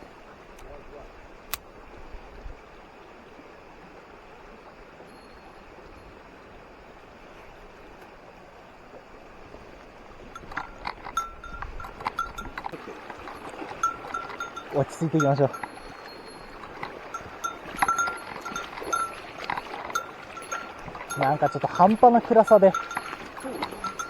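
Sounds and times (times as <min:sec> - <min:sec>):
stream water rushing: 0:02.9 - 0:24.0
small bell jingling: 0:10.4 - 0:24.0.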